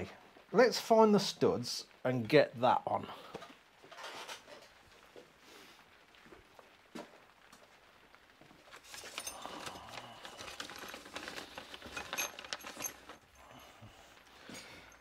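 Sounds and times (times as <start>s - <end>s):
metal parts clattering: 8.8s - 13.3s.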